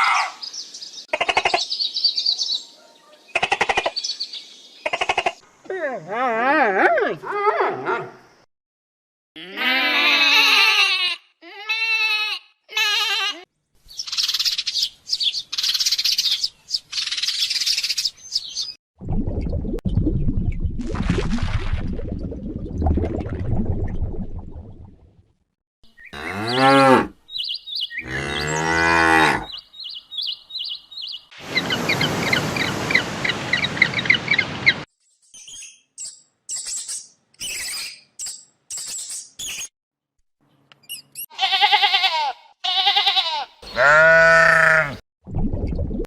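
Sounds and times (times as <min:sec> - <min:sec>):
cows mooing: 0:26.1 - 0:27.1, 0:28.0 - 0:29.5, 0:43.6 - 0:45.0
high chirping calls: 0:27.3 - 0:28.6, 0:29.5 - 0:39.7.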